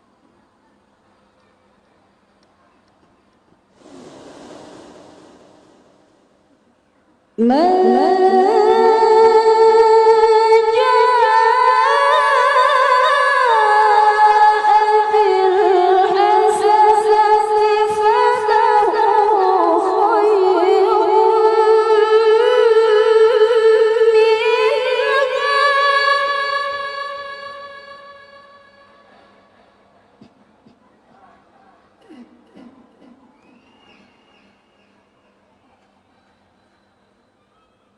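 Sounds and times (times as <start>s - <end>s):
woman reciting melodically: 7.4s - 29.4s.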